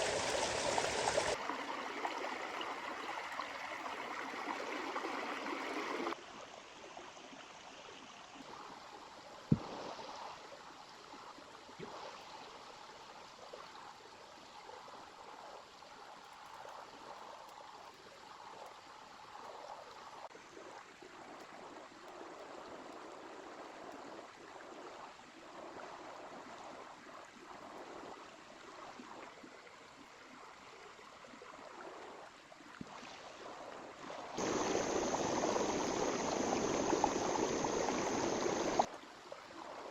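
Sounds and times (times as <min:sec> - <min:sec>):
river flowing: 0:00.0 - 0:06.2, 0:34.4 - 0:38.9.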